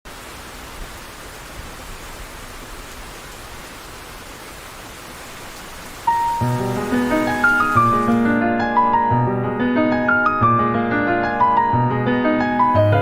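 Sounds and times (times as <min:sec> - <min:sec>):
rain falling steadily: 0:00.0 - 0:09.3.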